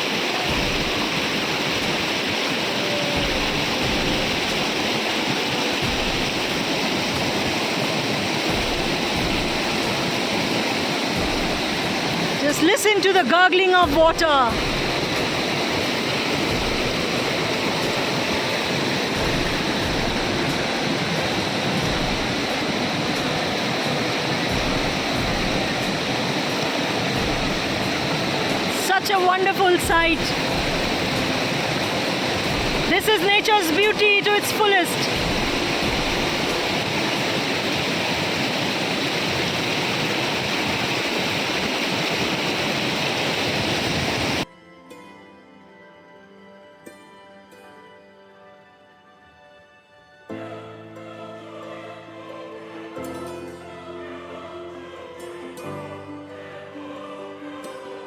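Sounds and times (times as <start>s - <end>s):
waterfall roaring: 0.0s - 44.4s
river flowing: 0.0s - 44.5s
faint music: 0.0s - 58.0s.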